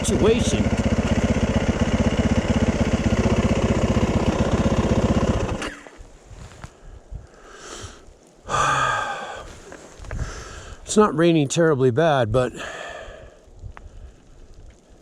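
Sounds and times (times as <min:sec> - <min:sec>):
dirt bike engine idling: 0:00.0 - 0:05.9.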